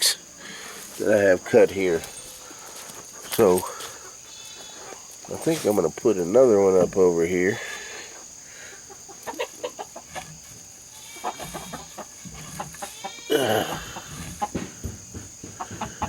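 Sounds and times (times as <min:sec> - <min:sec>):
chickens clucking: 0:00.0 - 0:16.0
chicken drawn-out call: 0:03.9 - 0:05.1, 0:08.7 - 0:16.0.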